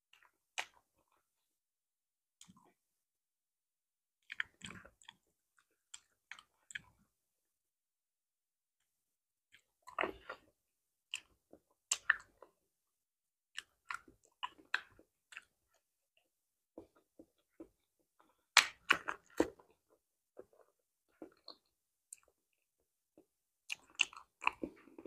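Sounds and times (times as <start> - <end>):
person chewing banana: 0.1 - 1.3, 4.2 - 7.0, 9.5 - 12.6, 13.5 - 15.9, 16.7 - 22.4, 23.2 - 25.0.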